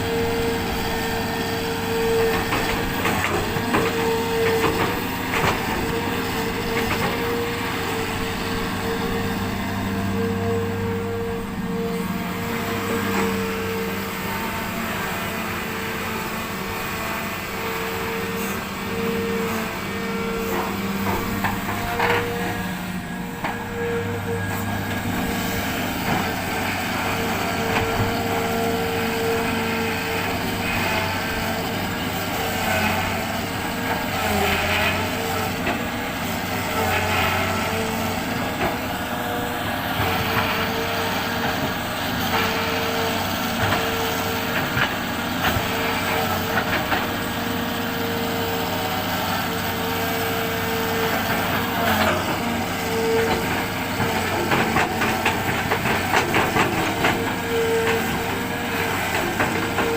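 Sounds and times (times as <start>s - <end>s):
steady whine: 0.0s - 31.9s
diesel engine running: 0.0s - 59.9s.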